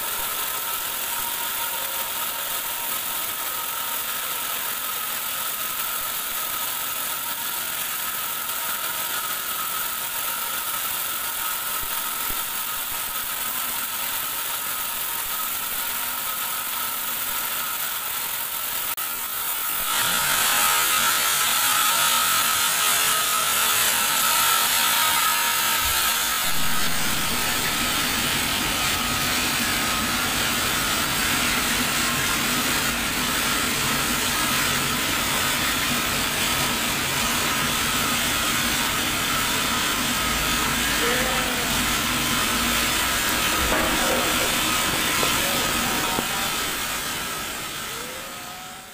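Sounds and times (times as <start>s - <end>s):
band saw whining: 0.0s - 48.9s
low hum: 25.9s - 29.9s.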